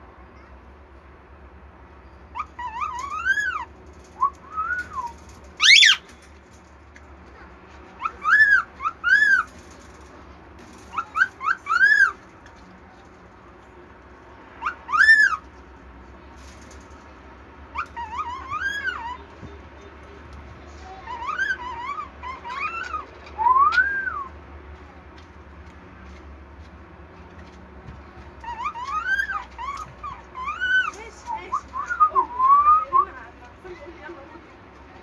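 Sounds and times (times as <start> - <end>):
bird whistling: 2.4 - 6.1, 8.0 - 9.5, 10.9 - 12.2, 14.6 - 15.4, 17.8 - 19.3, 21.1 - 24.3, 28.5 - 33.1.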